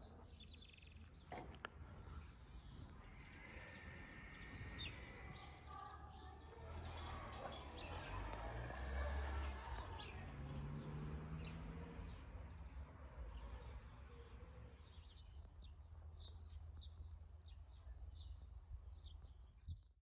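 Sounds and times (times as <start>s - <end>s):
low outdoor rumble: 0.0s - 19.9s
small birds chirping: 0.0s - 20.0s.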